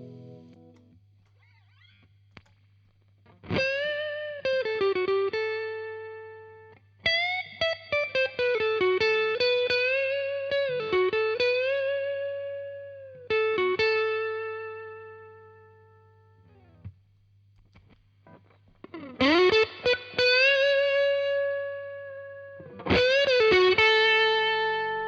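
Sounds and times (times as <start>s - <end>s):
electric guitar lead phrases: 0.0s - 2.0s, 3.2s - 16.9s, 17.8s - 25.0s
low amplifier hum: 0.0s - 3.4s.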